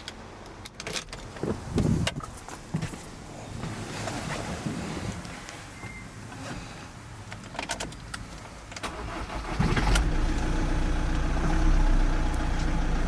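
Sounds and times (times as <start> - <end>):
van engine starting and idling: 8.7 - 13.0.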